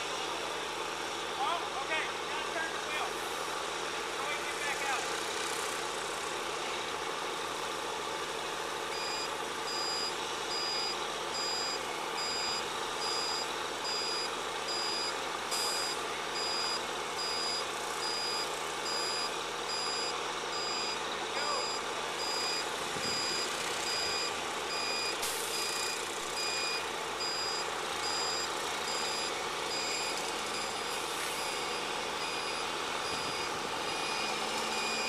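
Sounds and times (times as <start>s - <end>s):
heavy vehicle engine running: 0.0s - 35.0s
truck backup alarm beeping: 8.8s - 35.0s.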